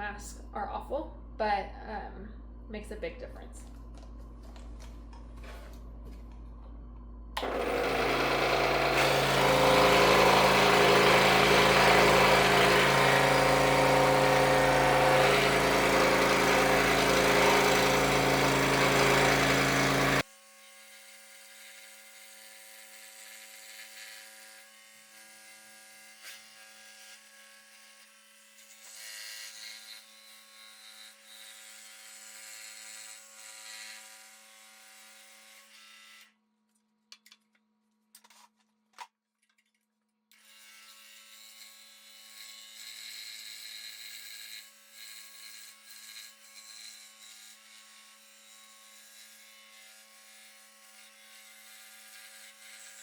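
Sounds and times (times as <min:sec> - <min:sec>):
scroll saw cutting wood: 0:07.4 - 0:36.3, 0:40.3 - 0:53.0.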